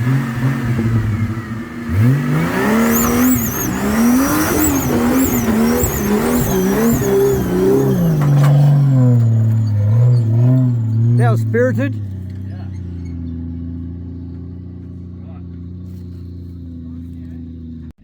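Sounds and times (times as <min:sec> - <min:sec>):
engine revving hard: 0:00.0 - 0:14.4
high wavering squeal: 0:02.8 - 0:11.3.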